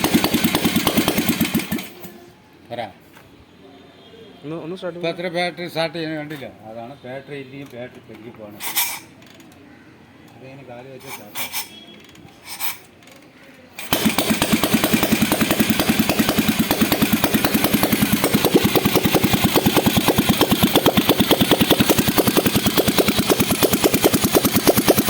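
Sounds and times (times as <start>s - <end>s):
motorcycle engine kick-started: 0.0s - 2.3s, 13.8s - 25.0s.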